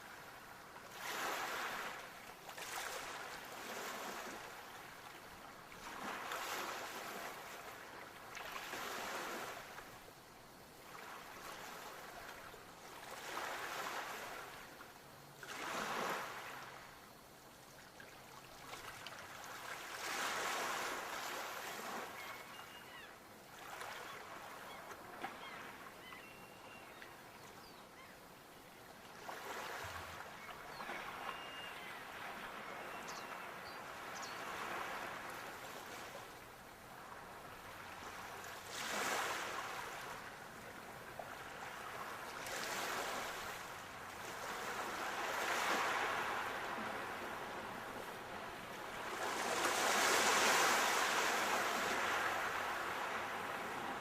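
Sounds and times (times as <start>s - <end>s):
sea waves breaking on shore: 0.0s - 10.0s, 10.8s - 14.8s, 15.4s - 17.2s, 17.9s - 26.9s, 29.0s - 54.0s.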